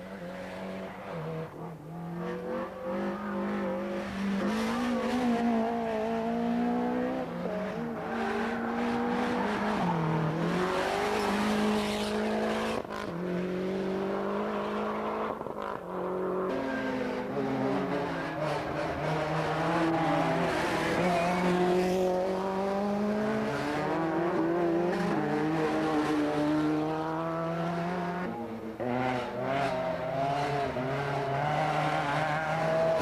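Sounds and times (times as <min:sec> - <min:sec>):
rally car engine revving: 0:00.0 - 0:33.0.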